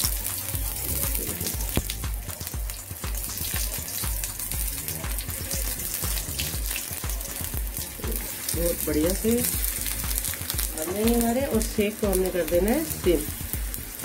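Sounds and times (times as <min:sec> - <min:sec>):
eggplant sizzling in oil: 0:00.0 - 0:14.0.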